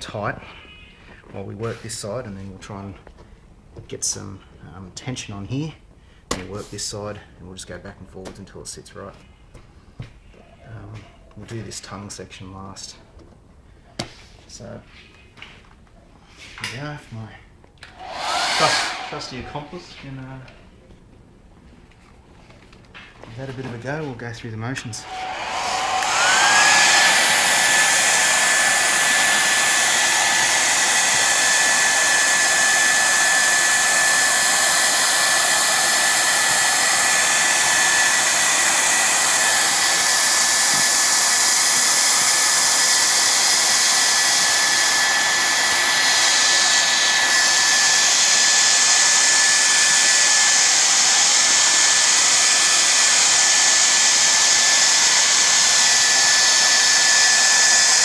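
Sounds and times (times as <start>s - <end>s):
hair dryer running: 17.8s - 20.2s, 25.0s - 58.0s.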